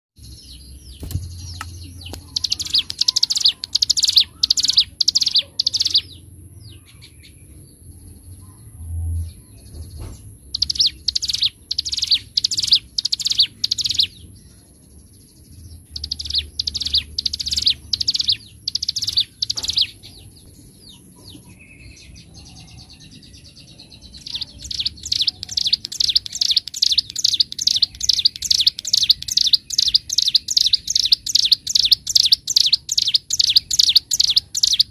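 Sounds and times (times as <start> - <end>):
bird singing sharp high notes: 0.9 - 6.2, 10.5 - 14.2, 15.8 - 20.0.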